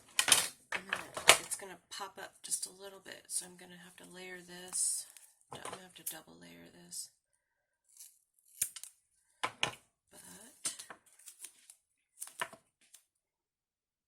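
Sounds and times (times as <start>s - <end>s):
cardstock clicking and rustling: 0.0s - 1.6s.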